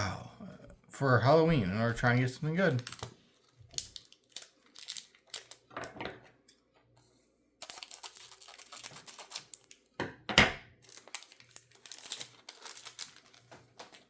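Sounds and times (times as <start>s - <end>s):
foil wrapper crinkling: 2.4s - 5.8s, 7.6s - 9.9s, 10.8s - 14.0s.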